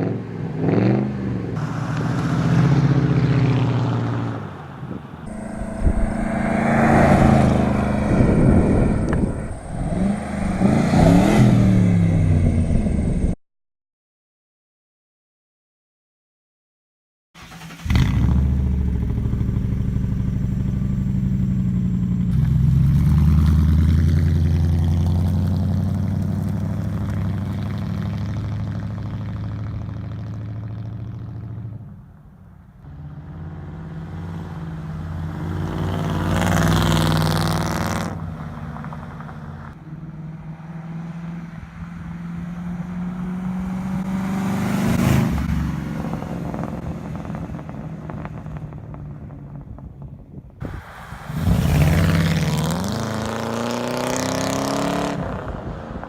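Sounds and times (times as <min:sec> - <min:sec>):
car engine deep exhaust note: 0:05.3 - 0:13.4, 0:17.9 - 0:28.3.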